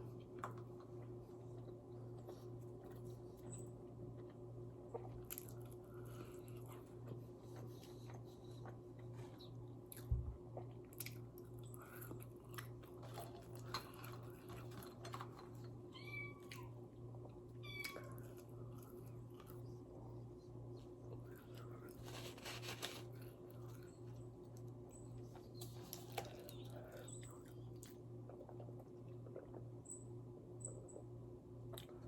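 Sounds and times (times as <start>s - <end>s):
chewing and crunching: 0.0s - 15.8s, 16.4s - 32.0s
steady low hum: 0.0s - 32.0s
kitten meowing: 16.0s - 16.7s.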